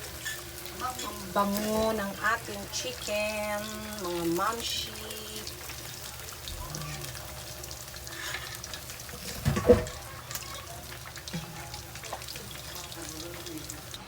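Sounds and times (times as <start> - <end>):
oil sizzling in a frying pan: 0.0 - 14.0.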